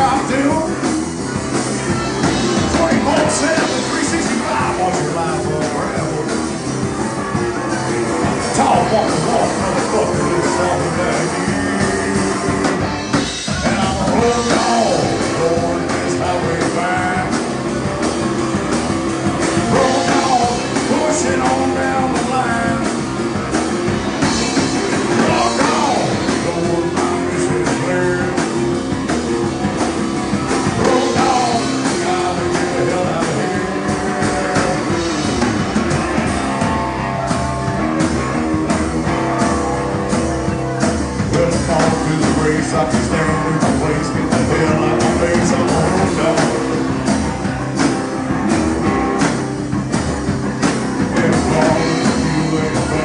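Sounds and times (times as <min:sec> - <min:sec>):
live rock band playing: 0:00.0 - 0:53.0
person singing: 0:01.9 - 0:06.6, 0:08.3 - 0:17.6, 0:19.5 - 0:23.0, 0:24.3 - 0:28.6, 0:30.6 - 0:35.8, 0:41.2 - 0:47.0, 0:51.0 - 0:53.0.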